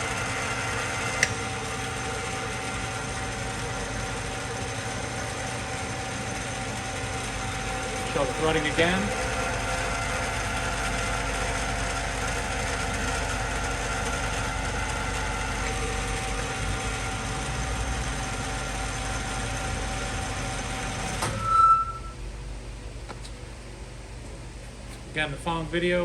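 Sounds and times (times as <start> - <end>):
lathe mechanical whine: 0.0 - 22.2
lathe shutdown squeal: 21.1 - 22.2.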